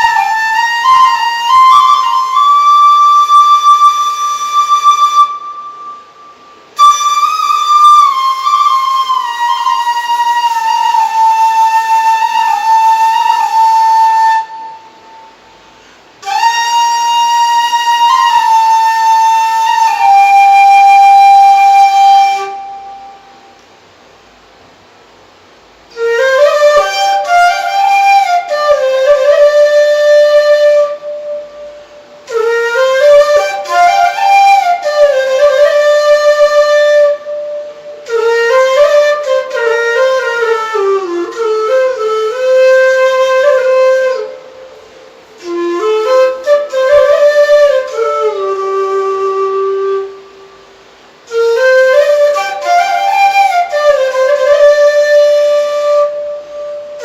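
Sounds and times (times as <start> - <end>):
solo flute melody: 0.0 - 57.0.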